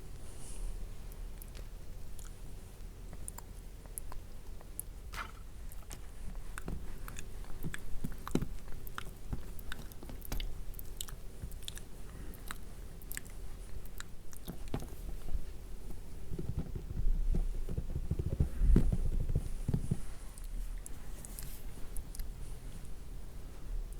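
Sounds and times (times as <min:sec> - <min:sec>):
soft low thumps: 0:14.6 - 0:22.4.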